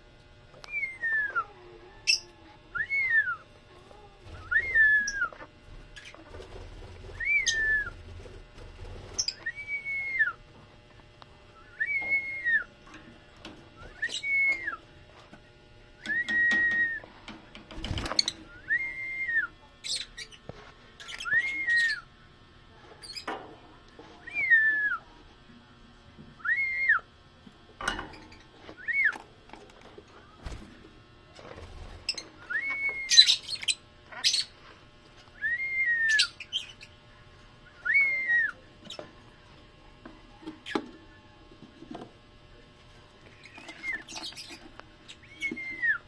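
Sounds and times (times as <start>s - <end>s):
bird whistled calls: 7.2s - 7.9s, 13.8s - 14.8s, 32.5s - 34.5s, 35.4s - 36.8s.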